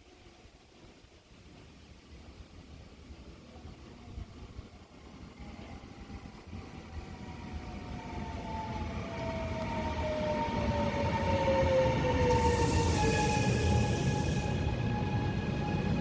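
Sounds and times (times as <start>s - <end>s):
train approaching: 5.0s - 16.0s
high hiss: 12.3s - 14.8s.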